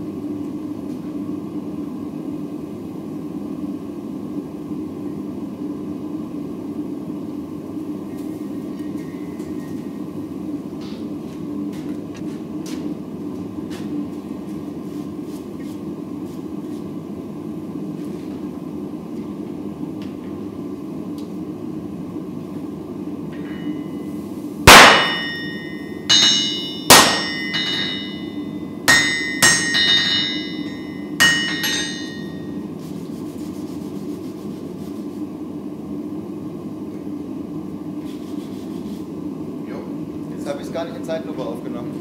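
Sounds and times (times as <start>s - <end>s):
hammer striking steel on anvil: 24.7s - 32.6s.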